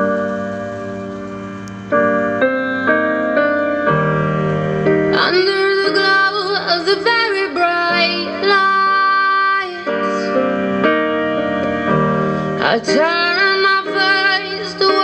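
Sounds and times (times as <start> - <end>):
sustained piano chords: 0.0 - 15.0
woman singing: 5.1 - 10.6, 12.6 - 15.0.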